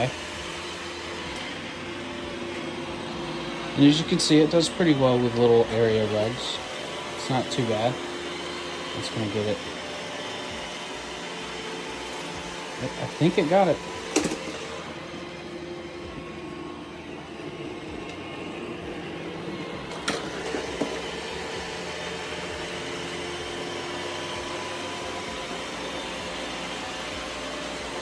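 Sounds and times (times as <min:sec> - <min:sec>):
robot vacuum whirring: 0:00.0 - 0:28.0.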